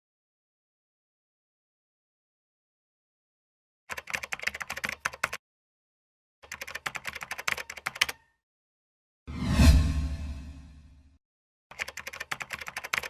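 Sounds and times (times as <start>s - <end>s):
keyboard typing: 3.9s - 5.4s, 6.4s - 8.3s, 11.7s - 13.0s.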